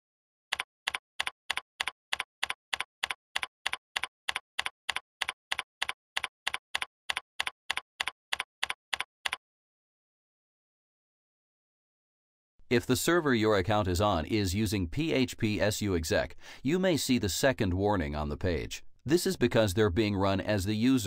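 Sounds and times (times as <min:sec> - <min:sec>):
keyboard keystrokes clicking: 0:00.5 - 0:09.4.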